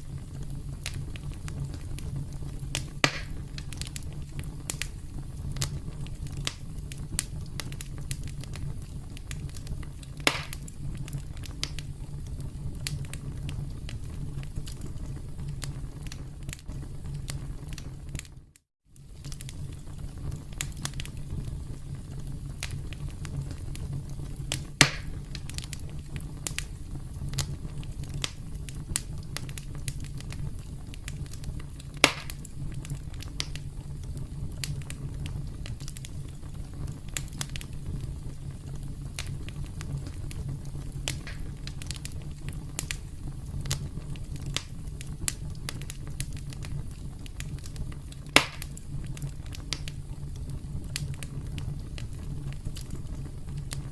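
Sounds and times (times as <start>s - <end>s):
campfire crackling: 0.0s - 53.9s
loud fire pops: 0.0s - 53.9s.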